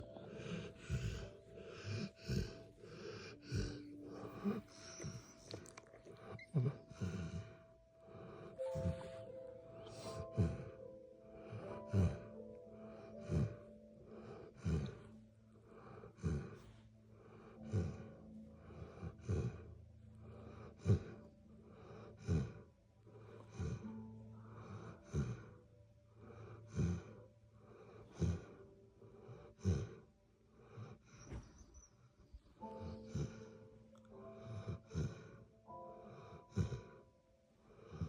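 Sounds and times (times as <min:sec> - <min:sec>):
dog snoring: 0:00.0 - 0:25.6, 0:26.2 - 0:37.1.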